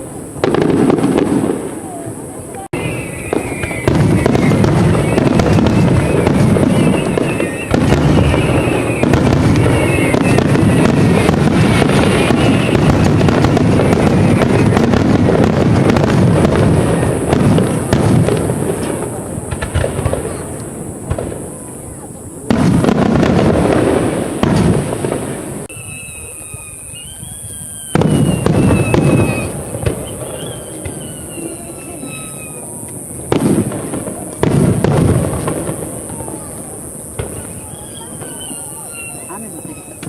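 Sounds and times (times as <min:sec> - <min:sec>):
fireworks booming and crackling: 0:00.0 - 0:40.0.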